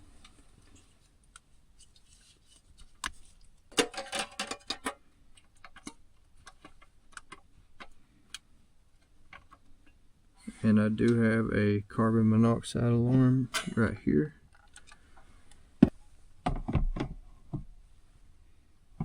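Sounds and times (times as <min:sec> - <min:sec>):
butane canister clicks and knocks: 0:15.8 - 0:17.7.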